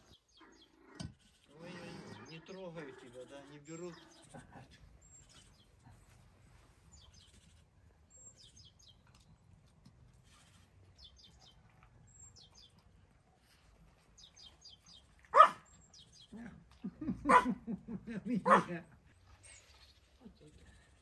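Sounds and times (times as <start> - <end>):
small bird chirping: 0.0 - 4.4, 5.0 - 6.0, 6.9 - 9.5, 10.2 - 12.9, 14.2 - 16.4.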